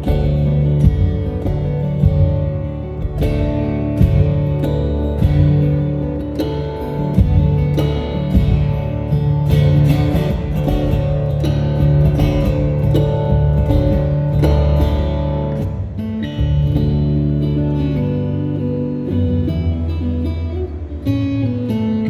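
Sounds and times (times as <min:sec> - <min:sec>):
strummed acoustic guitar: 0:00.0 - 0:22.0.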